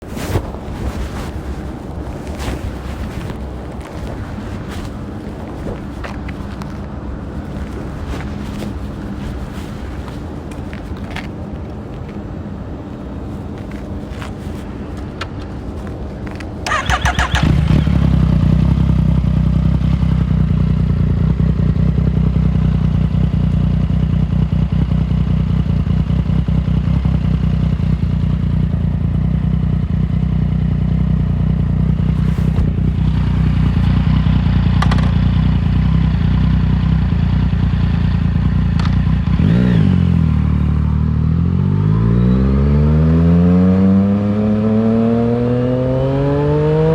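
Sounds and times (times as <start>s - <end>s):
motorcycle engine starting and idling: 13.3s - 42.3s.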